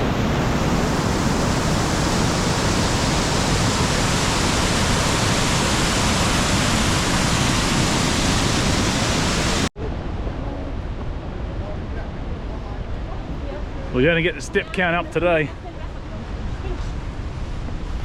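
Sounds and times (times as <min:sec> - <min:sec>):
waterfall rushing: 0:00.0 - 0:09.7.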